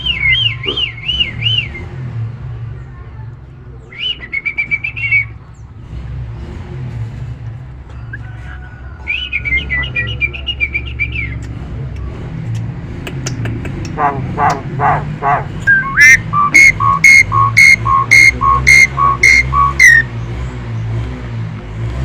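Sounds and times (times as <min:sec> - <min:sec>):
myna whistling: 0:00.0 - 0:01.9, 0:03.9 - 0:05.4, 0:09.0 - 0:11.4, 0:14.4 - 0:20.2.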